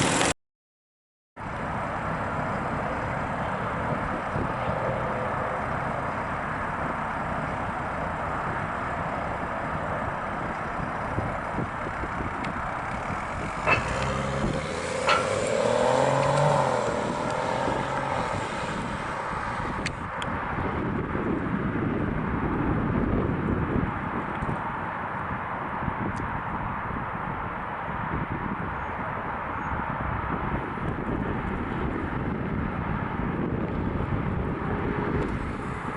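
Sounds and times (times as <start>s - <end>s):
road noise: 0.0s - 0.4s, 1.4s - 35.9s
car engine running: 5.4s - 20.2s.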